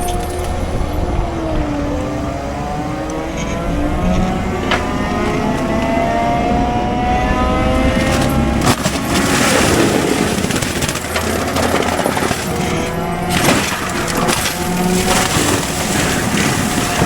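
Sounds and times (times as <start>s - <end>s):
excavator engine and hydraulics: 0.0s - 17.0s
sharp cracks: 7.7s - 17.0s.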